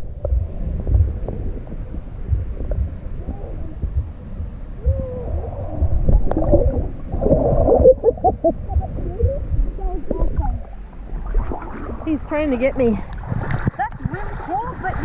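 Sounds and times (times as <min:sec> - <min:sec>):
muffled water gurgling: 0:00.0 - 0:15.0
wavering whale-like tones: 0:03.0 - 0:11.8.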